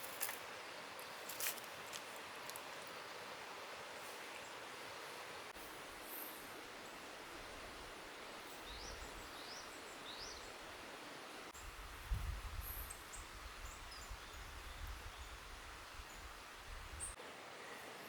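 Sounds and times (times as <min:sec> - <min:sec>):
songbirds calling: 0:08.1 - 0:10.8.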